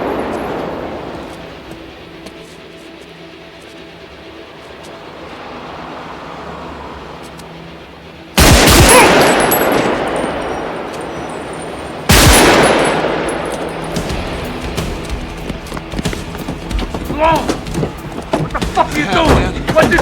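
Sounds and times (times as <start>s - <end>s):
echoing handgun shots: 8.4s - 14.4s.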